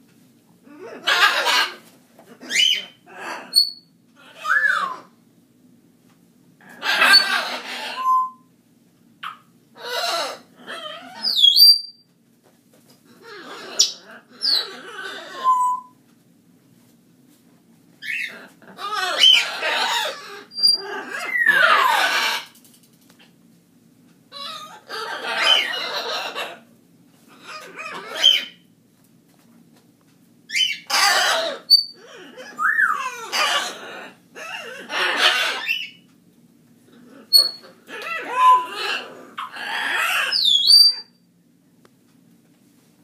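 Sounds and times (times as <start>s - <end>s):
pet bird squawking: 1.0s - 1.8s, 2.4s - 5.1s, 6.7s - 8.4s, 9.2s - 11.9s, 13.2s - 15.9s, 18.0s - 22.6s, 24.3s - 26.6s, 27.3s - 28.6s, 30.5s - 36.0s, 37.2s - 41.2s
bird whistles: 8.0s - 8.5s, 15.4s - 16.0s, 40.4s - 41.1s.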